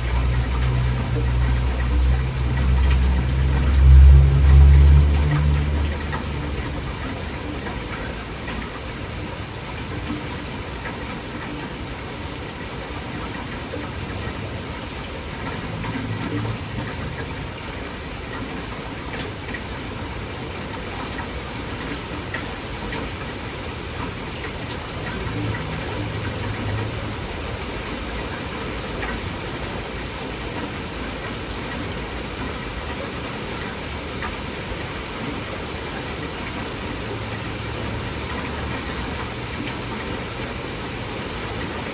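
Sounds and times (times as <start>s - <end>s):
low rumble: 0.0s - 7.3s
heavy rain pouring: 0.0s - 41.9s
raindrops ticking: 0.0s - 41.9s.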